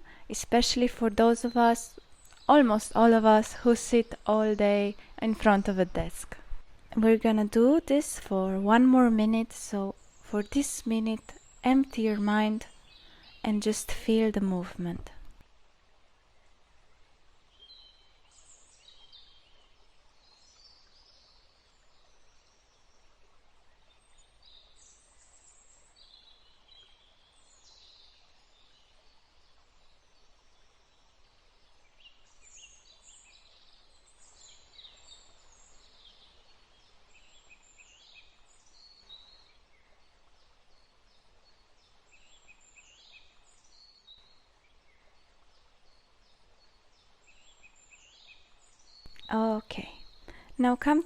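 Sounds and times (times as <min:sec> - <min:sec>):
low steady hiss: 0:00.0 - 0:51.0
small birds chirping and trilling: 0:31.7 - 0:51.0.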